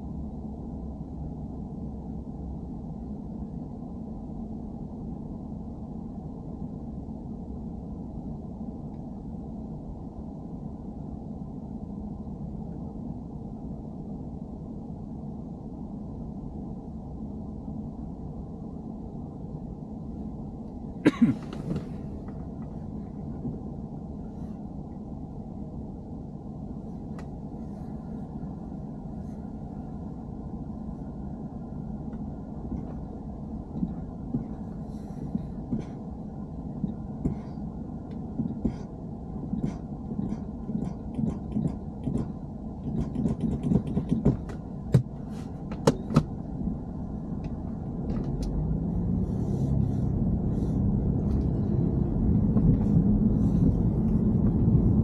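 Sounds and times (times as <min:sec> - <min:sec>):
low rumble inside car: 0:00.0 - 0:55.0
sharp clicking and rattling ticks: 0:39.6 - 0:44.6.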